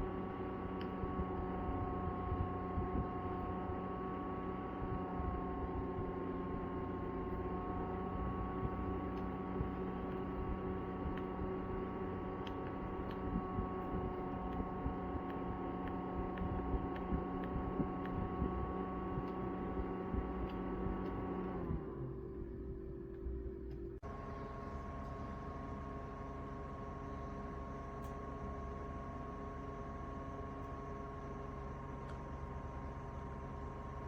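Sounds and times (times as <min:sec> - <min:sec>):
electric fan motor humming: 0:00.0 - 0:34.0
faint irregular ticks: 0:06.9 - 0:21.6.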